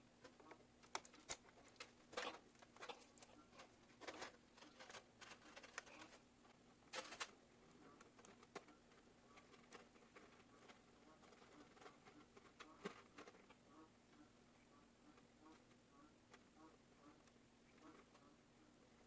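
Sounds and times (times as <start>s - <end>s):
low steady hum: 0.0s - 19.0s
clicks and rustles of handling parts: 0.2s - 7.4s.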